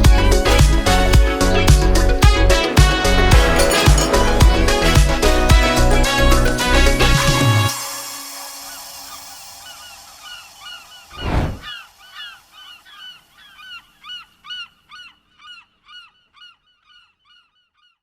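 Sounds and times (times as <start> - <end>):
bird honking calls: 9.6 - 18.0
loud whoosh: 11.2 - 11.6.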